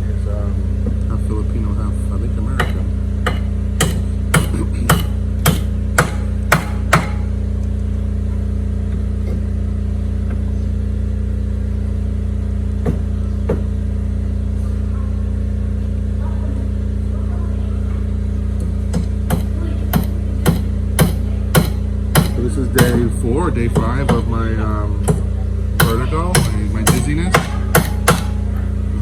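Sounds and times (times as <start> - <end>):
generator humming: 0.0 - 29.0
hammer blows: 2.6 - 7.4, 18.6 - 24.4, 25.0 - 28.5.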